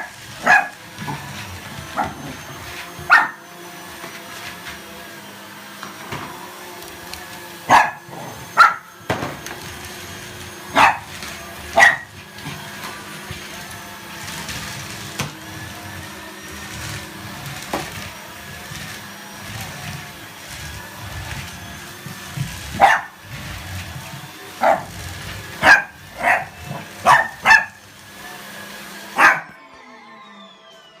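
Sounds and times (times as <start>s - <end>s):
vacuum cleaner hum: 0.0s - 31.0s
dog barking: 0.4s - 0.7s, 3.1s - 3.4s, 7.7s - 8.9s, 10.8s - 11.1s, 11.8s - 12.1s, 22.8s - 23.2s, 24.6s - 24.9s, 25.6s - 27.8s, 29.2s - 29.6s.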